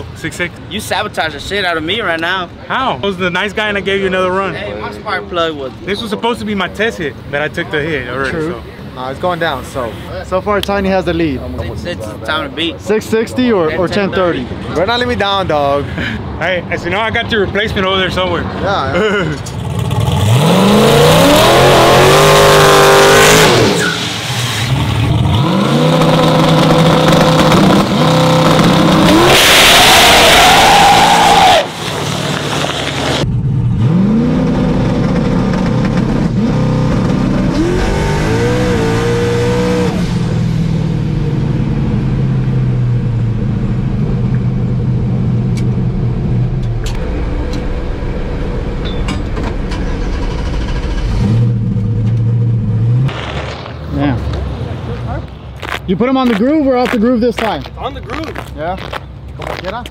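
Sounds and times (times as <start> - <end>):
truck engine accelerating: 19.0 - 55.2.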